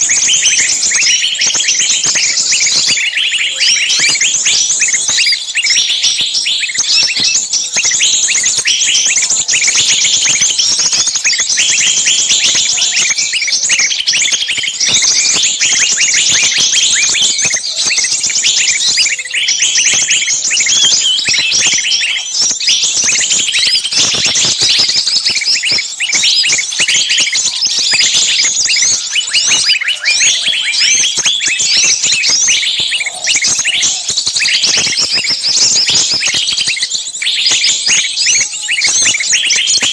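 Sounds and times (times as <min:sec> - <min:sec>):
many small birds chirping: 0:00.0 - 0:39.9.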